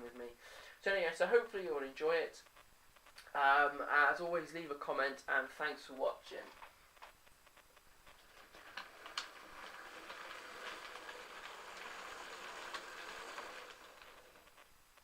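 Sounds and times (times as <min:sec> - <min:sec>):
sharp clicks: 0:02.4 - 0:03.3.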